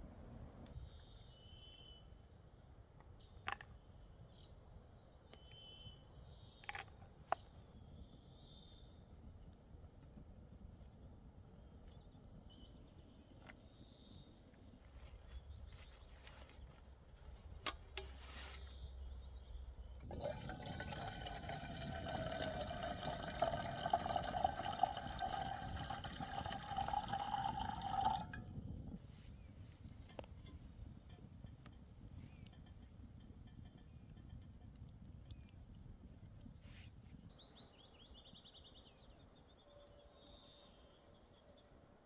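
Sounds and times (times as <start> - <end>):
liquid pouring into container: 20.0 - 28.9.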